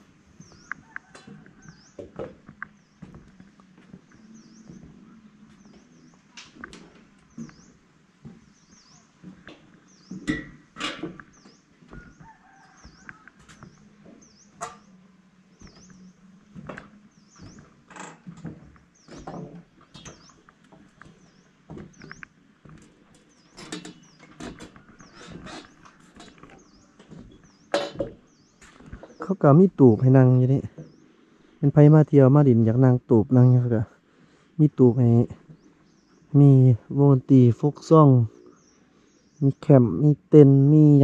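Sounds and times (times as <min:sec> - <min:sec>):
bird chirping: 0:00.3 - 0:41.0
clicks and knocks: 0:16.6 - 0:28.2.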